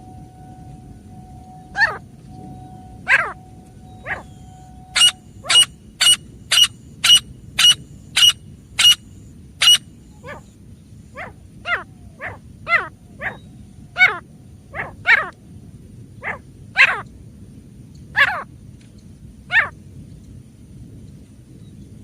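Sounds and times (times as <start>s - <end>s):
francolin calling: 0.0s - 10.6s.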